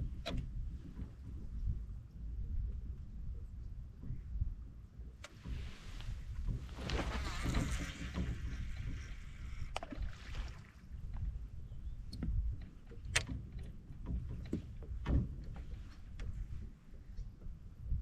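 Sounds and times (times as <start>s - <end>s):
water splashing and sloshing: 5.2s - 17.7s
sharp clicks and knocks: 12.1s - 16.4s.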